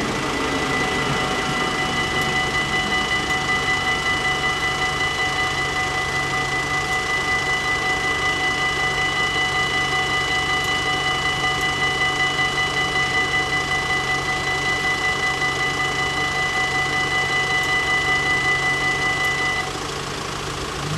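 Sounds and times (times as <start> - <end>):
level crossing bells ringing: 0.0 - 7.2
faint engine hum: 0.0 - 10.7, 14.5 - 20.9.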